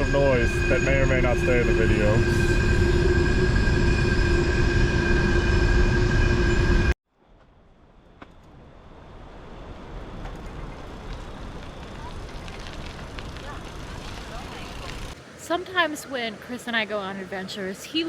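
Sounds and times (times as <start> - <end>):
freight train rumbling past: 0.0 - 6.9
steady ringing tones: 0.0 - 7.0.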